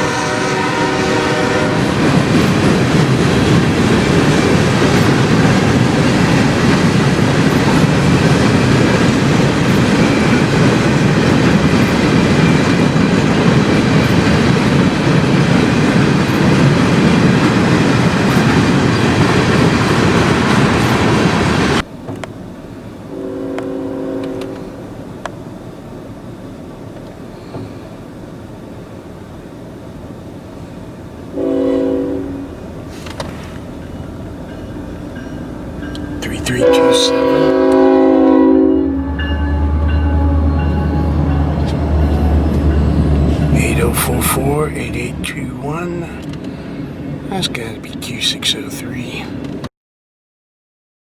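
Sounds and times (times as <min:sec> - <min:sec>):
locomotive air horn: 0:00.0 - 0:02.0, 0:23.1 - 0:24.8, 0:31.4 - 0:32.6, 0:36.2 - 0:44.4
low horn blast: 0:00.0 - 0:10.6, 0:23.1 - 0:24.9, 0:31.4 - 0:32.6, 0:35.8 - 0:46.3
train wheels on rails: 0:00.0 - 0:49.7.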